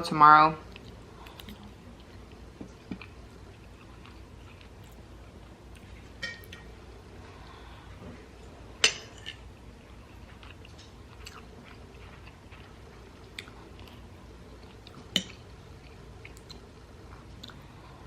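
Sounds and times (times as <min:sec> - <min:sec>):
person chewing food: 0:00.7 - 0:06.1, 0:09.8 - 0:18.0.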